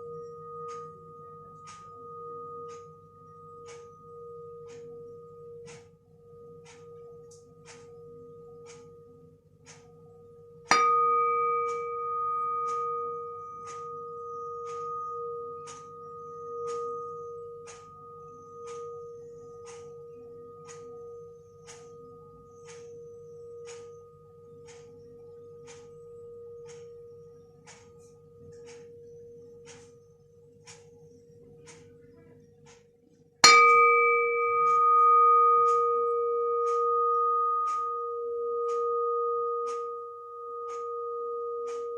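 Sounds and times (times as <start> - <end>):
metal pan lid struck and ringing: 10.7 - 14.4, 33.4 - 39.6
clock ticking: 24.6 - 26.0, 26.6 - 41.9.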